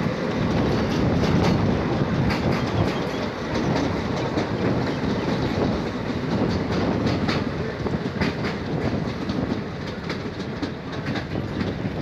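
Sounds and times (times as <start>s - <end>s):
train rumbling on track: 0.0s - 12.0s
wheels clicking over rail joints: 0.0s - 12.0s.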